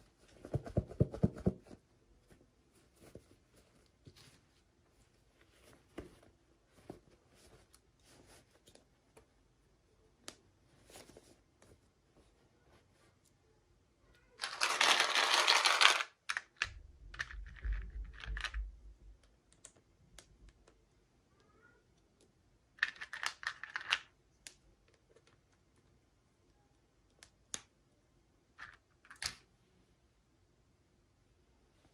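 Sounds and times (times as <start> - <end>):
plastic or paper rustling: 14.4 - 16.0
small clicks and taps: 16.3 - 20.8.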